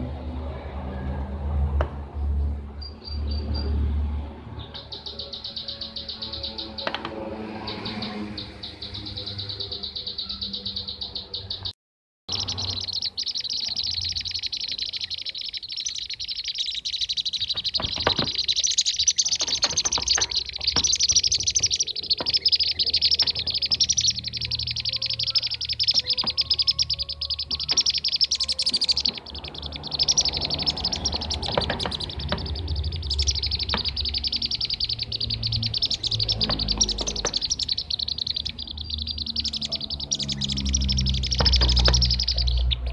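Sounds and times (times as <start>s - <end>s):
bee-eaters chirping and trilling: 4.6s - 11.7s, 12.3s - 42.9s.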